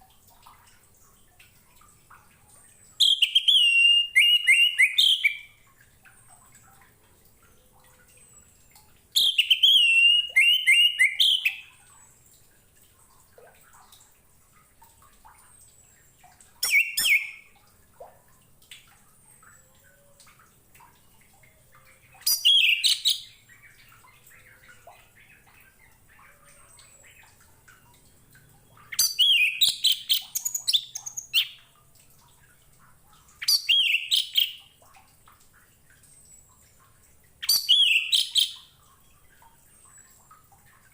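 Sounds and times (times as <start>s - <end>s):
thrush singing warbled whistles: 3.0s - 5.5s, 9.2s - 11.6s, 16.6s - 17.4s
faint bird chirps: 15.4s - 17.5s, 21.5s - 27.9s.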